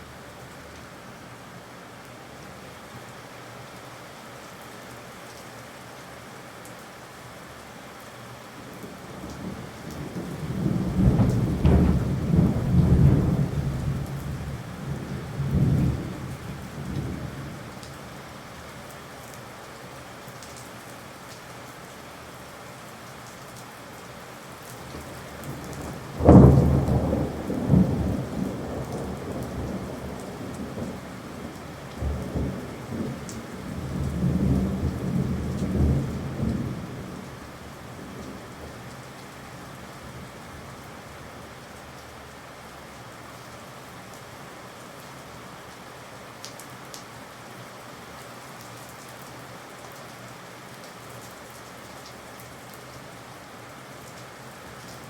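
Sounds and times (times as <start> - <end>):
steady rain: 0.0 - 55.0
rolling thunder: 9.2 - 17.5, 24.9 - 37.3
thunder clap: 10.0 - 14.6, 25.8 - 29.7.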